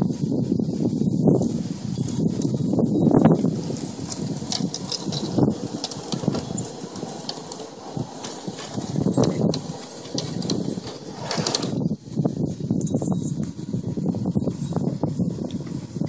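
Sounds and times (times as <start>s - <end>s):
model train running on track: 0.6s - 12.3s.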